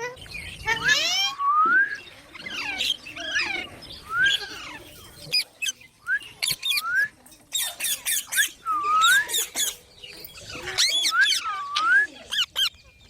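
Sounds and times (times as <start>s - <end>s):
parrot chirping and squeaking: 2.3s - 9.8s.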